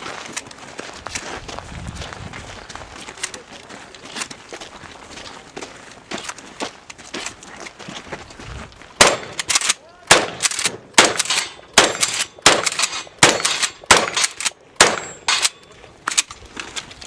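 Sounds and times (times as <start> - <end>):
shotgun shots: 9.0 - 15.6
steel targets clanging: 10.3 - 16.2.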